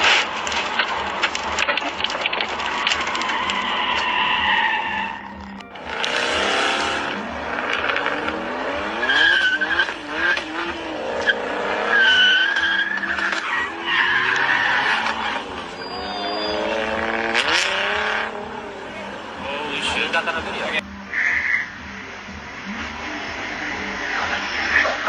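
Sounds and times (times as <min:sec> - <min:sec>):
sharp crack: 0:00.0 - 0:04.2
tyres squealing: 0:00.0 - 0:21.8
car engine revving hard: 0:00.0 - 0:25.0.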